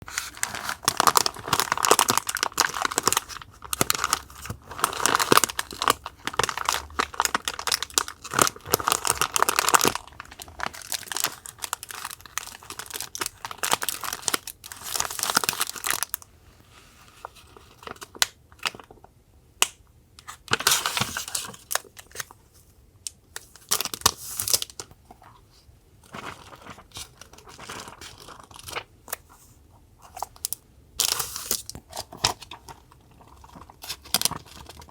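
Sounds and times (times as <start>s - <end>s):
paper and packaging crinkling: 0.1s - 16.2s, 25.5s - 34.9s.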